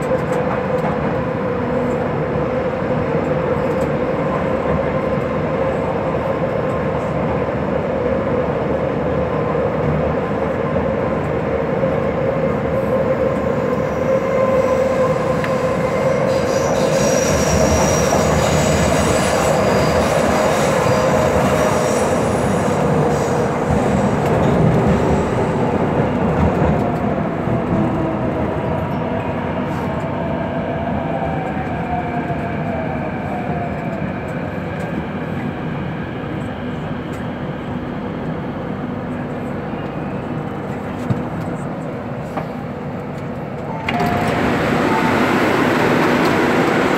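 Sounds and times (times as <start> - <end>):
train wheel and track rumble: 0.0 - 46.9
high-pitched wheel squeal: 15.6 - 22.2.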